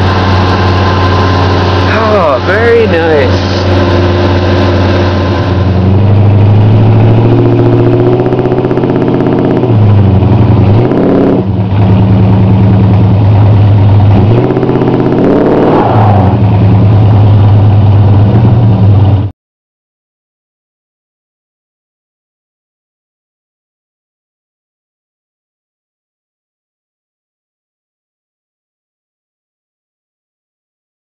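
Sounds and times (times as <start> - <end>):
car engine running: 0.0 - 19.3.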